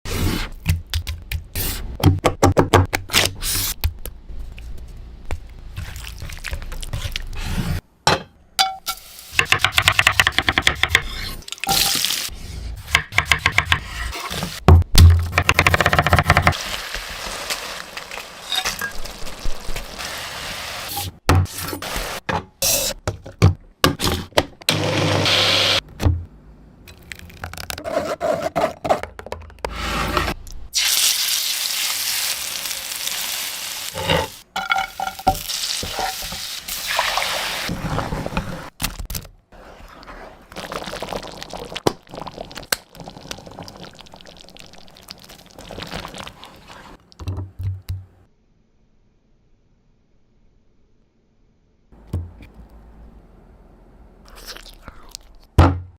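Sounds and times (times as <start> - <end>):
food sizzling in a pan: 16.6 - 21.0, 30.8 - 37.7
liquid pouring: 40.5 - 46.9.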